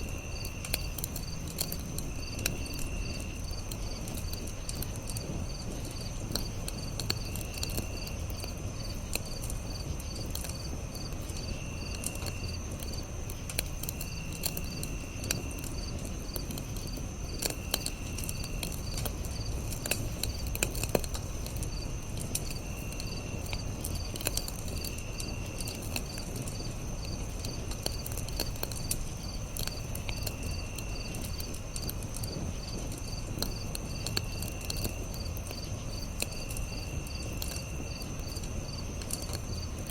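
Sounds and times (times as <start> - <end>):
campfire crackling and popping: 0.0 - 39.9
crickets chirping: 0.0 - 39.9
insect trilling: 20.3 - 39.9.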